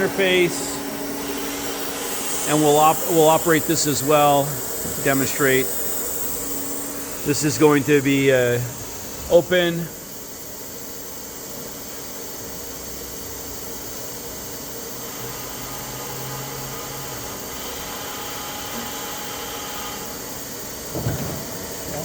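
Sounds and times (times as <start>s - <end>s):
bar feeder hiss and hum: 0.0s - 22.0s.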